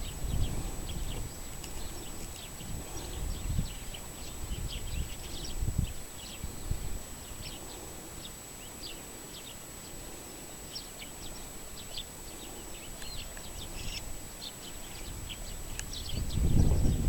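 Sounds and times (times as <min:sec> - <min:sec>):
faint steady high whine: 0:00.0 - 0:17.0
small birds chirping: 0:00.0 - 0:17.0.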